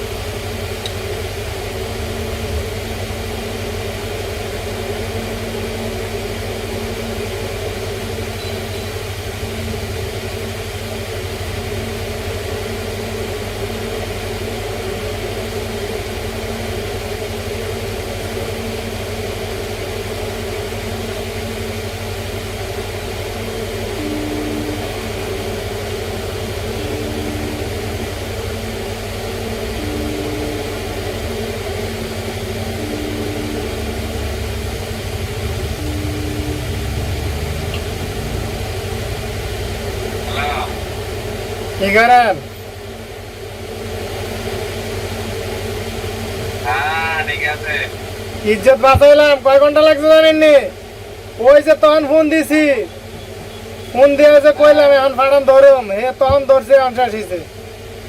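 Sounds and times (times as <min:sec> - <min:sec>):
steady machine hum: 0:00.0 - 0:58.0
faint short tone: 0:08.4 - 0:09.0, 0:24.0 - 0:25.6.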